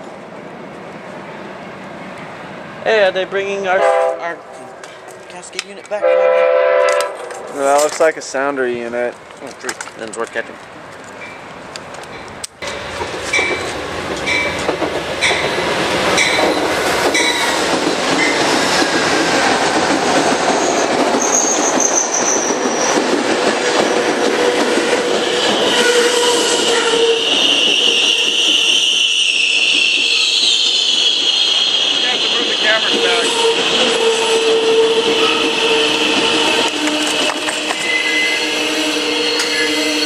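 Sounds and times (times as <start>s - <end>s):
train wheels clicking over rail joints: 6.9s - 34.1s, 35.1s - 38.0s
wheels and brakes squealing: 20.5s - 23.1s, 25.4s - 40.0s.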